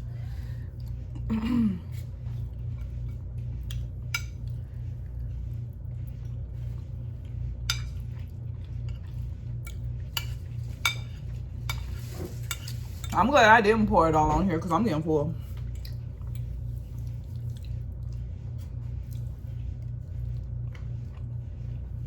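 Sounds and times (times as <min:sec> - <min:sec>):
steady low hum: 0:00.0 - 0:22.0
utensil scraping a dish: 0:11.7 - 0:13.4.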